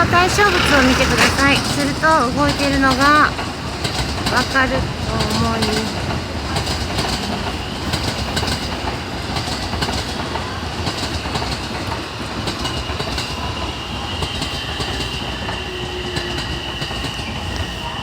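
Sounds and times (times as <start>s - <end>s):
loud rumbling noise: 0.0s - 8.1s.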